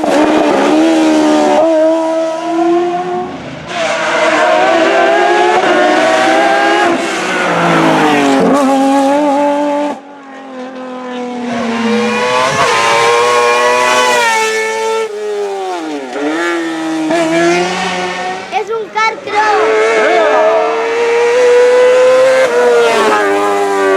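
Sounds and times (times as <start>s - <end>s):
racing car engines revving: 0.0s - 23.9s.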